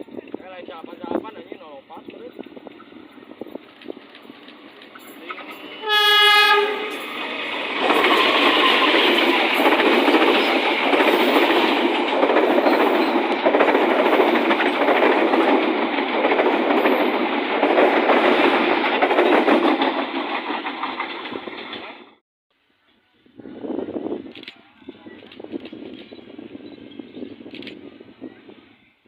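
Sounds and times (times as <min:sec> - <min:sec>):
train passing rumble: 0:00.0 - 0:22.2
train horn blast: 0:05.3 - 0:07.0
wheel clatter on rails: 0:07.8 - 0:22.2.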